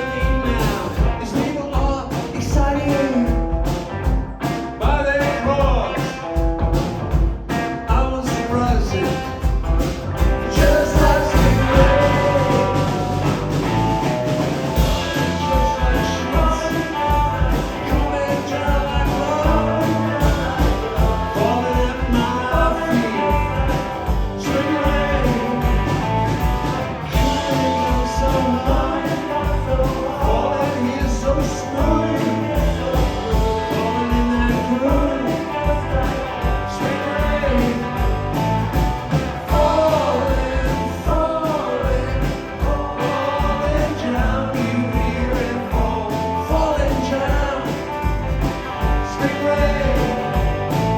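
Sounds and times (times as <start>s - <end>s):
drums beating: 0.0s - 50.9s
electric guitars: 0.0s - 50.9s
person singing: 10.5s - 26.4s, 27.1s - 38.6s, 39.4s - 50.9s.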